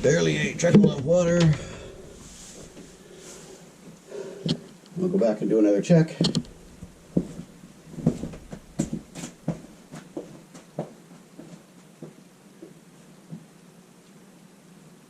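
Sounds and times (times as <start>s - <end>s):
footsteps walking away: 0.0s - 4.6s, 6.3s - 13.5s
steady low hum: 0.0s - 10.9s.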